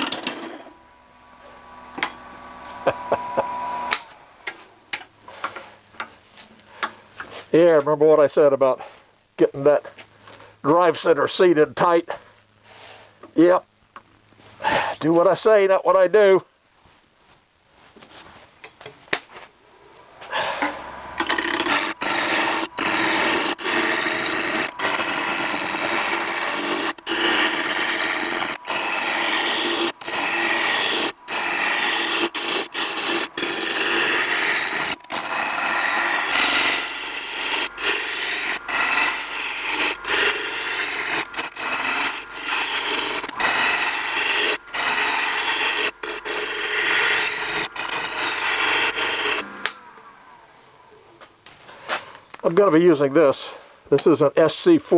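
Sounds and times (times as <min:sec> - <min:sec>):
lathe gouge scraping wood: 0:00.0 - 0:04.6, 0:19.9 - 0:50.5.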